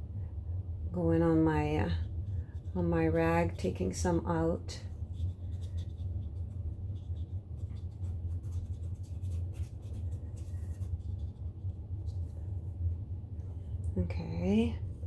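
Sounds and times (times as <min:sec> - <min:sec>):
steady low hum: 0:00.0 - 0:15.0
paintbrush strokes on paper: 0:01.3 - 0:12.8.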